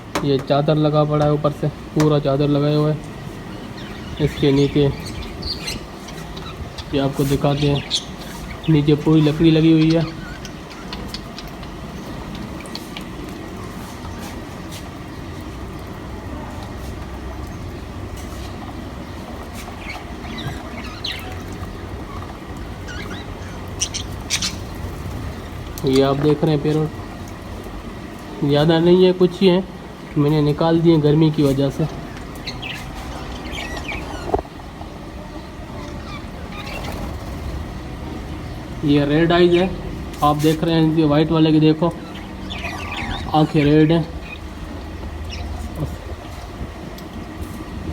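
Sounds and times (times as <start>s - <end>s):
parrots chirping: 3.1s - 12.8s, 18.4s - 25.8s, 31.4s - 34.6s, 35.3s - 40.6s, 41.8s - 46.4s
steady low rumble: 23.7s - 26.0s.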